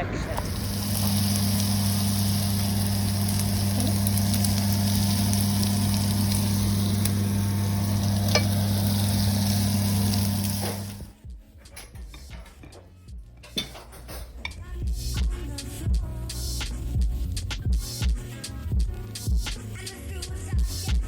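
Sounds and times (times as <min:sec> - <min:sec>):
low electrical hum: 0:00.0 - 0:11.1
food sizzling in a hot pan: 0:00.3 - 0:11.1.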